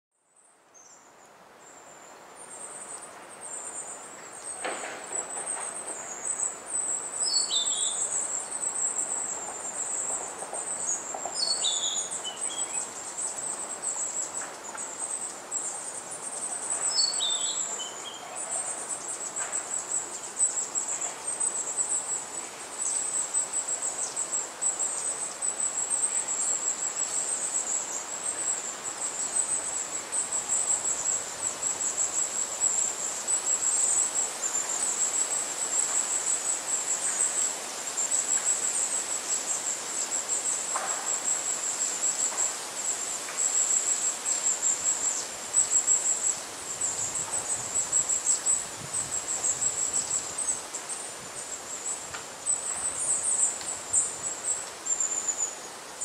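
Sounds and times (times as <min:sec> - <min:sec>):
small birds twittering: 0:00.8 - 0:56.0
gusting wind: 0:44.8 - 0:54.6.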